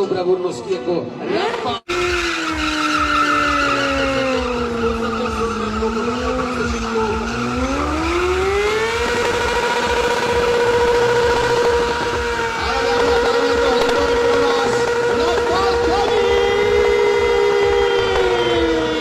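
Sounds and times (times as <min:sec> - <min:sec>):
motorcycle engine at high revs: 0:01.2 - 0:19.0.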